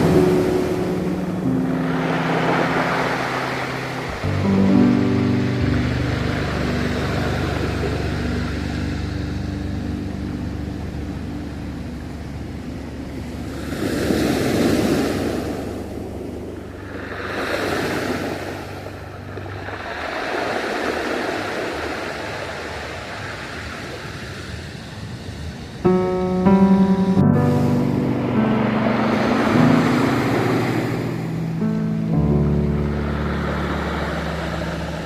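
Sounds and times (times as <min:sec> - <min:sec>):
ocean waves washing ashore: 0:00.0 - 0:35.0.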